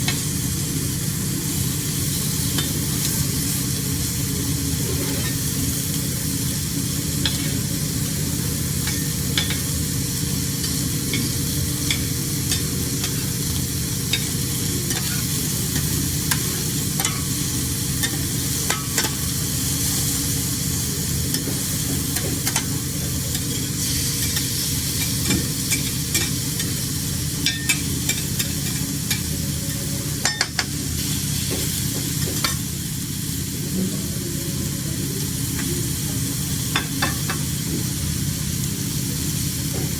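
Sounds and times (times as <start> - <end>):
seafood sizzling on a grill: 0.0 - 39.9.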